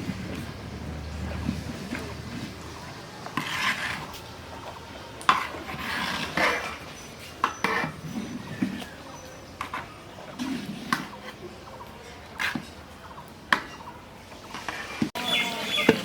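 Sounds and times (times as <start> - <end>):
metal utensils scraping a pot: 0.0 - 16.0.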